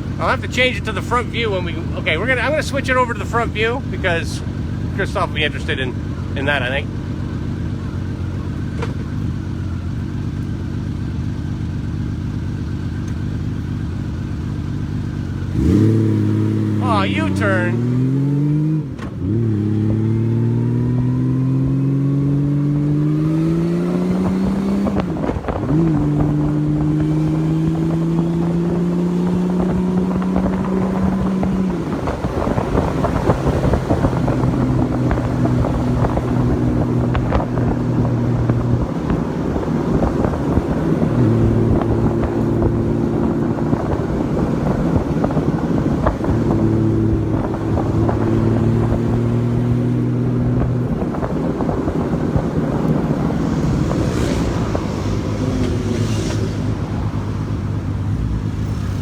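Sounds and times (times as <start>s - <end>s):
motorcycle engine pulling away: 5.9s - 59.0s
wind rushing over microphone: 15.5s - 59.0s.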